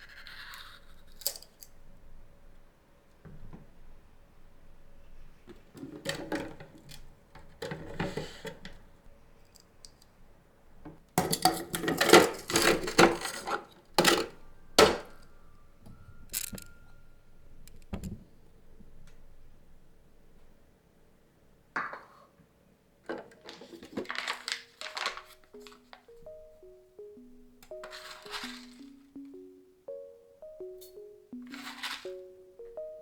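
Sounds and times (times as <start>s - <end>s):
dishes and utensils clinking: 11.2s - 15.2s.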